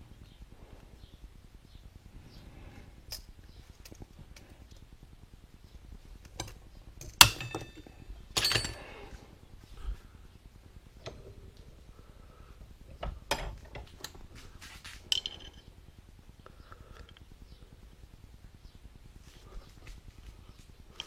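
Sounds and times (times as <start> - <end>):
steel parts clinking: 6.4 - 9.0.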